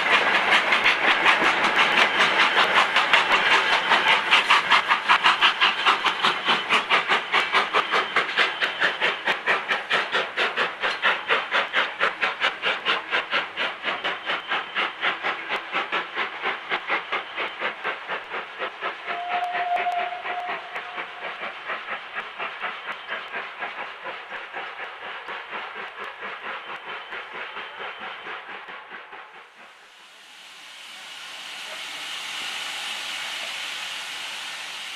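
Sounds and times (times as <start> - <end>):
steam locomotive chuffing: 0.0 - 34.9
steam whistle: 19.0 - 21.6, 30.1 - 34.9.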